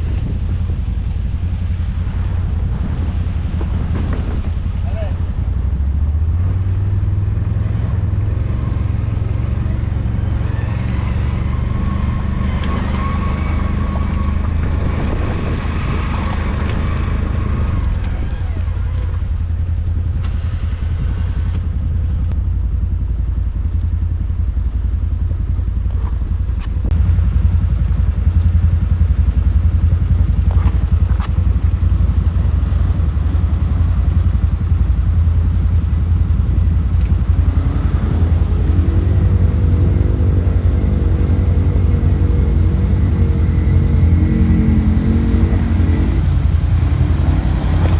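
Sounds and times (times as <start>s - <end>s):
atv engine droning: 26.9s - 47.9s.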